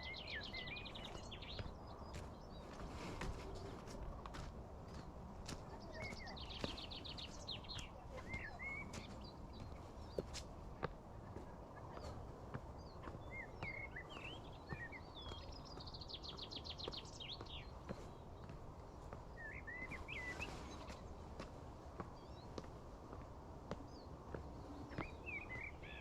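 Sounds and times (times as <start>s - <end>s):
birds chirping and whistling: 0.0s - 2.7s, 12.8s - 18.2s, 19.3s - 21.0s, 24.0s - 26.0s.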